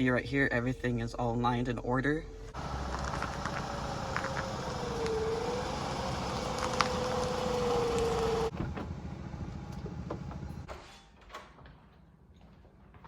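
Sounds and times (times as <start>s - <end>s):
car engine and road noise: 2.5s - 10.7s.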